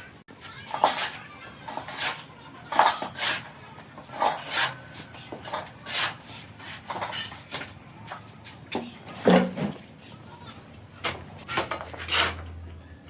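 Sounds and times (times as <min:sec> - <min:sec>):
hand tool rasping: 0:00.5 - 0:07.7.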